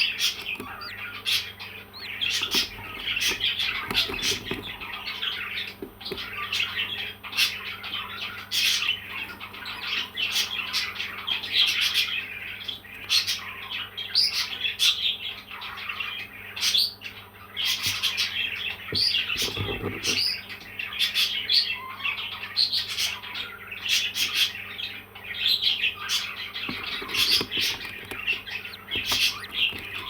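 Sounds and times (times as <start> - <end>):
parrot chirping and squawking: 0.0 - 10.5, 26.0 - 30.0.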